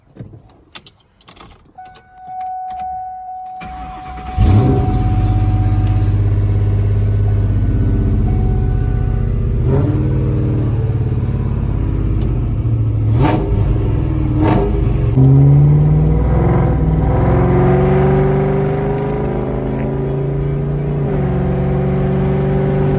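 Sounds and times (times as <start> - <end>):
car engine idling: 3.6 - 22.9
steady tone: 4.4 - 14.4.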